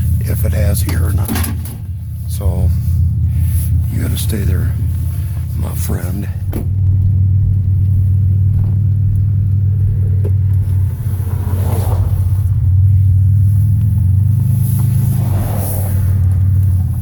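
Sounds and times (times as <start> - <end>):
road noise: 0.0 - 17.0
vehicle engine rumble: 0.0 - 17.0.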